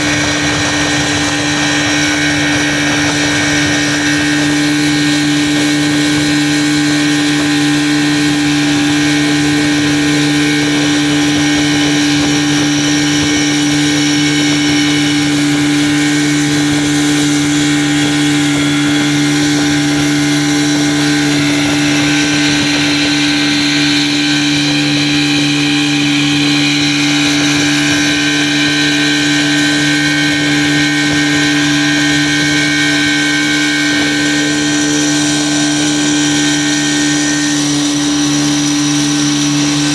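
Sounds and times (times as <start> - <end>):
outboard engine running: 0.0 - 39.9.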